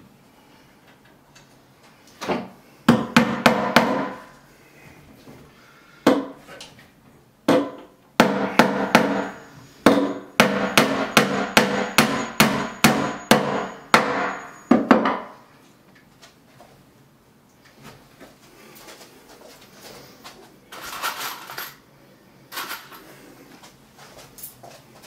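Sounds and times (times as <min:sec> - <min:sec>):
ringing hammer blows: 0:08.2 - 0:15.4.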